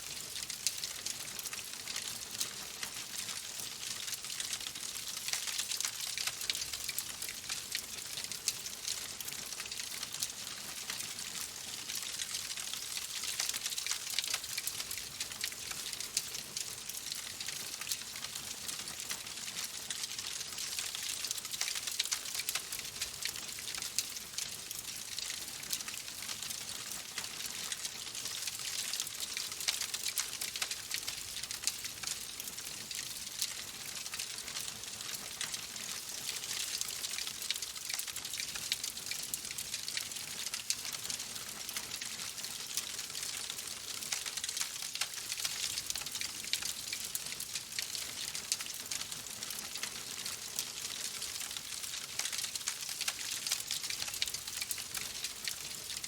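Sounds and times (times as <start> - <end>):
wood fire crackling: 20.7 - 26.0, 49.6 - 56.0.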